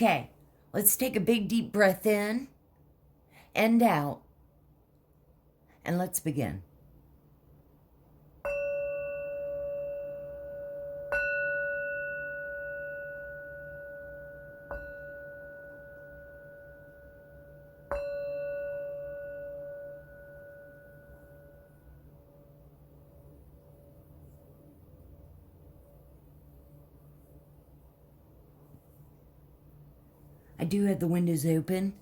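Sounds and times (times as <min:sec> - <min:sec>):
singing bowl struck and ringing: 0:08.4 - 0:23.9.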